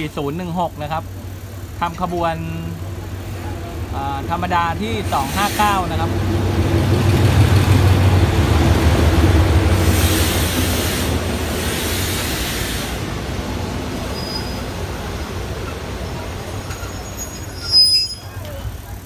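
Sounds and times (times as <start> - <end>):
locomotive engine drone: 0.0 - 19.0
train coaches rumbling on rails: 0.0 - 19.0
loud hiss: 4.2 - 6.1, 9.6 - 16.0.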